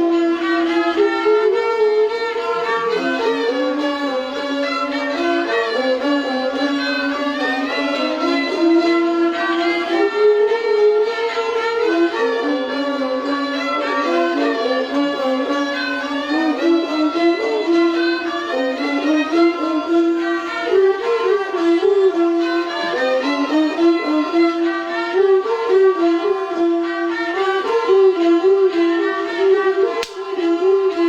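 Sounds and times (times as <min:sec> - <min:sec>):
bowed fiddle melody: 0:00.0 - 0:31.0.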